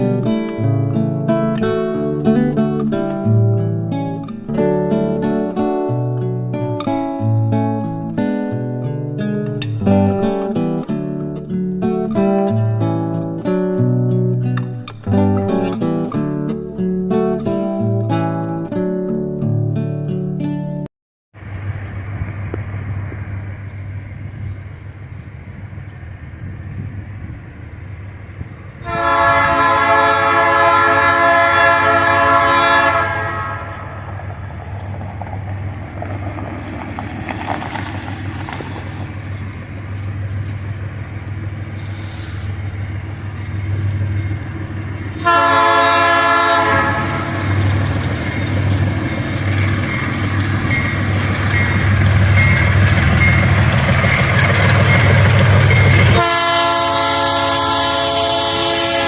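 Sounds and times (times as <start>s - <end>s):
locomotive diesel engine rumbling: 21.4s - 59.0s
locomotive air horn: 28.8s - 34.1s, 45.2s - 47.8s, 56.1s - 59.0s.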